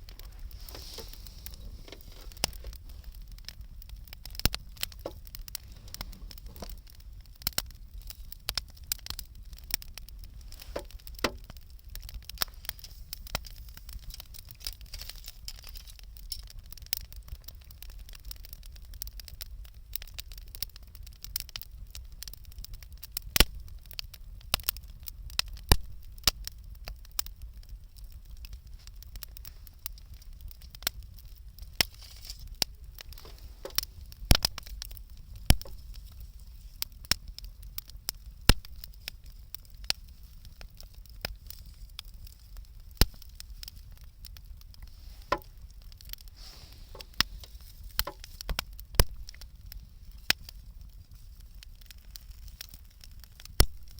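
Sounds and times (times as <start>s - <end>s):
low steady rumble: 0.0s - 14.1s
bonfire crackling and popping: 0.0s - 53.9s.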